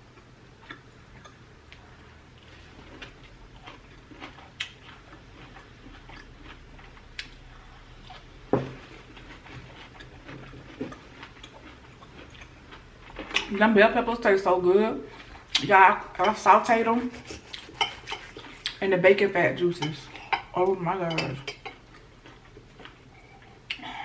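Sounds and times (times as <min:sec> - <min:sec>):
close chewing: 0:00.1 - 0:13.5, 0:17.2 - 0:18.8, 0:21.5 - 0:23.8.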